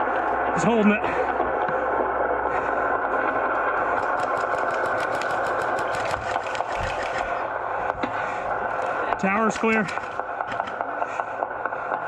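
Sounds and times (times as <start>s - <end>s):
airsoft gun firing full auto: 3.9s - 7.4s, 9.4s - 10.9s.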